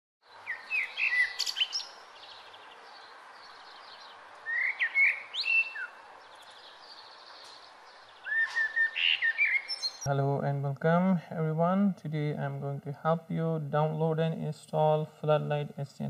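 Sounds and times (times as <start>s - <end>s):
birds chirping: 0.2s - 10.1s
steady background hiss: 0.3s - 16.0s.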